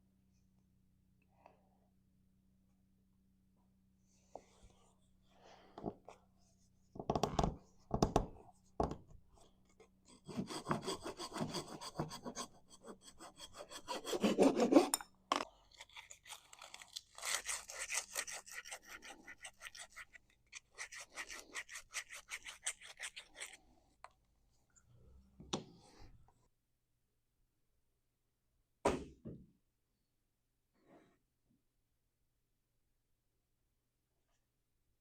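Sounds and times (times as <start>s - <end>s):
hand saw cutting wood: 10.1s - 15.0s, 17.2s - 23.5s
knock: 28.8s - 29.5s.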